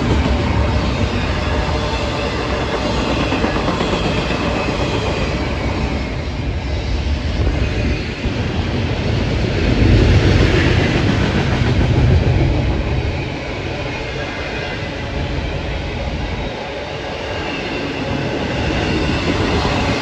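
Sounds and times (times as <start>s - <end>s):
rail cars rumbling past: 0.0s - 20.0s.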